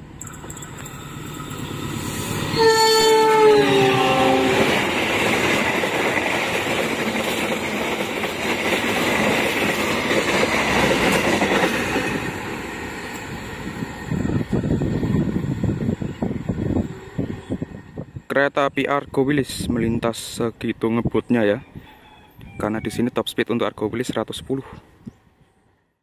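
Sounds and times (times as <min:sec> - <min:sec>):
locomotive horn: 0:02.5 - 0:04.8
train wheels clattering on rails: 0:04.4 - 0:15.3.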